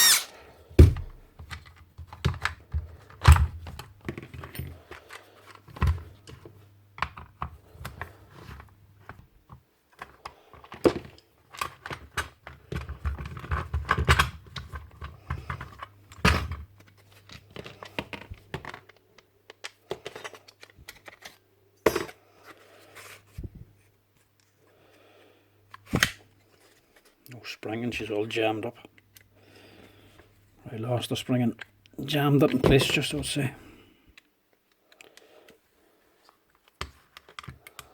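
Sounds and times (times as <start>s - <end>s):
hand tools clinking on metal parts: 0.0s - 0.3s.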